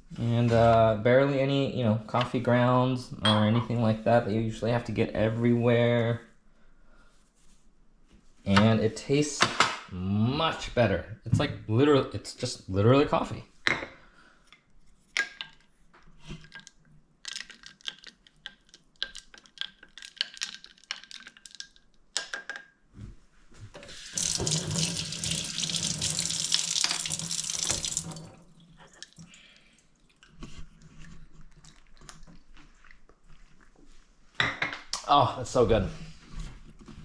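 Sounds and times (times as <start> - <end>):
tap running into sink: 24.0 - 28.3.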